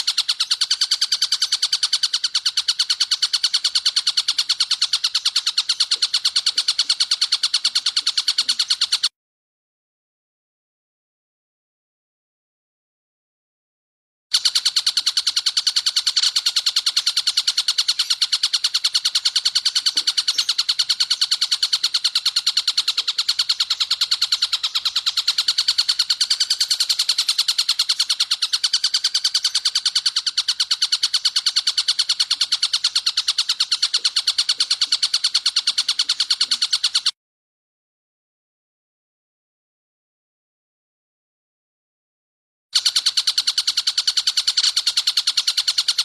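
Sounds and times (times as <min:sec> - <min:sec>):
kingfisher rattling call: 0:00.0 - 0:09.1, 0:14.3 - 0:37.1, 0:42.8 - 0:46.0.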